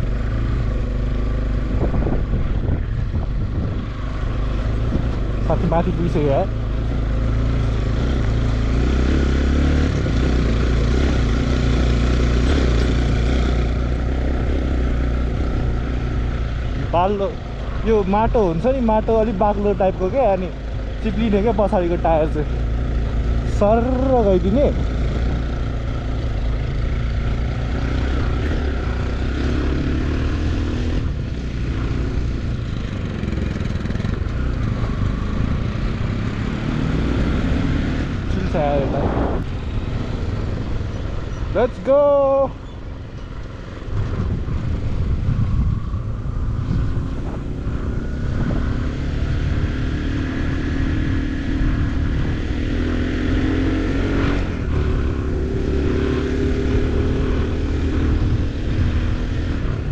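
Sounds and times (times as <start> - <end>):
motorcycle engine running: 0.0 - 59.9
low rumble: 38.1 - 41.3, 43.8 - 49.7
rushing noise: 38.3 - 40.0.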